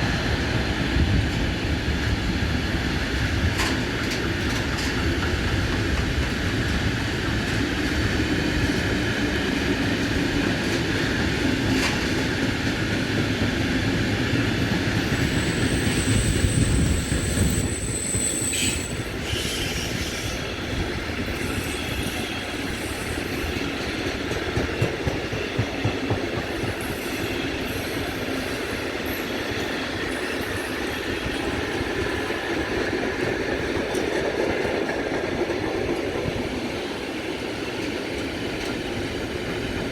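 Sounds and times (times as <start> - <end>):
train rumbling on rails: 0.0 - 39.9
train wheel squeal: 14.2 - 34.6.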